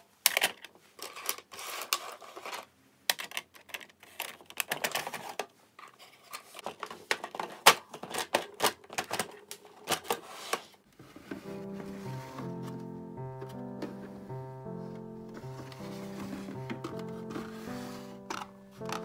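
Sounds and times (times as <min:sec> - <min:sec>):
soft background music: 0:11.0 - 0:19.0.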